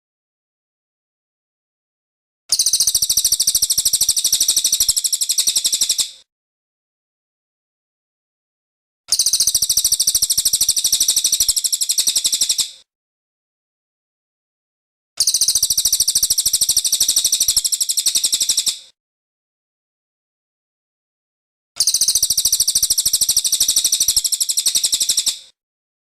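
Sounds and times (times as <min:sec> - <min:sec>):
bird chirping rapidly: 0:02.5 - 0:06.2, 0:09.1 - 0:12.8, 0:15.2 - 0:18.8, 0:21.8 - 0:25.4.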